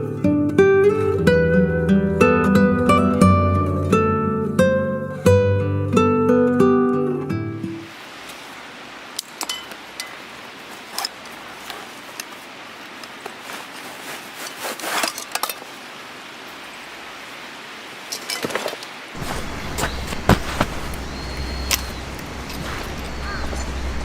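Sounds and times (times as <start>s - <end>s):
steady hiss: 7.8s - 18.2s, 19.0s - 24.0s
light knocks clicks and rustling: 18.2s - 24.0s.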